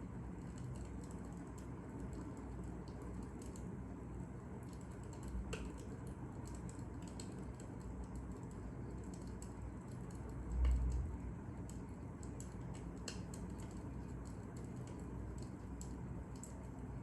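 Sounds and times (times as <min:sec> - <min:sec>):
fire crackling and popping: 0:11.7 - 0:16.6.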